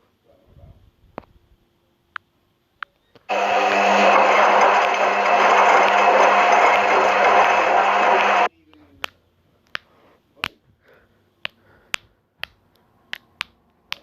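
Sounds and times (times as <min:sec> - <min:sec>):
washing machine whirring: 0:03.3 - 0:08.5.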